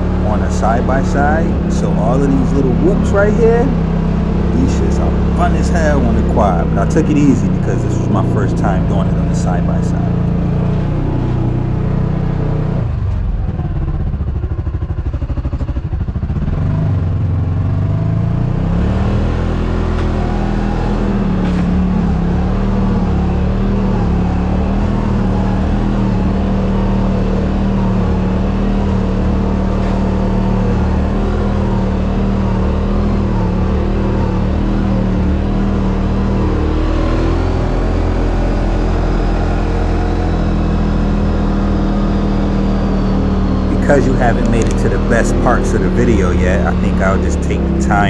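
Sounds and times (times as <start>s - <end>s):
utility vehicle engine running: 0.0s - 48.0s.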